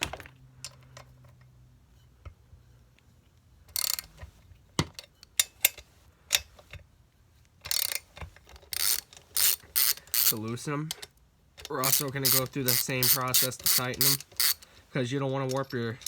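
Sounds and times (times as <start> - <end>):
ratchet wrench clicking: 3.7 - 4.1, 7.7 - 8.0, 8.7 - 10.6, 11.6 - 14.7, 15.5 - 16.0.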